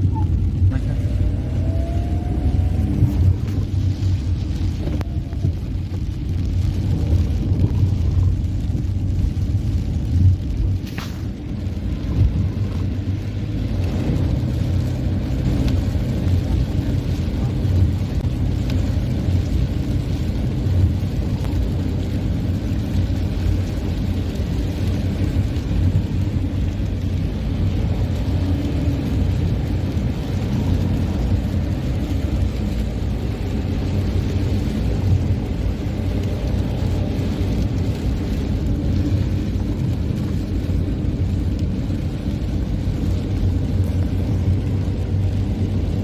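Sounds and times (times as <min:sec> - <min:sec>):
car tyres on wet road: 0:00.0 - 0:46.0.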